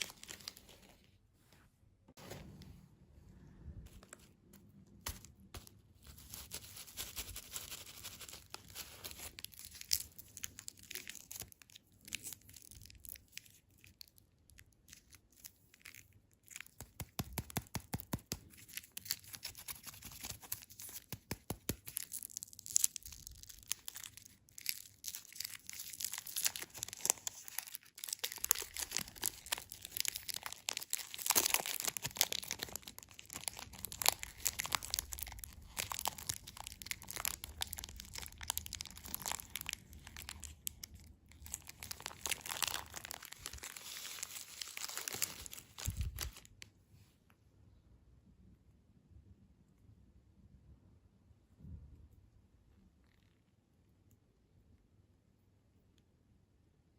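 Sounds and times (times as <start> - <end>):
packaging tearing and crinkling: 0.0 - 1.0, 5.0 - 46.6.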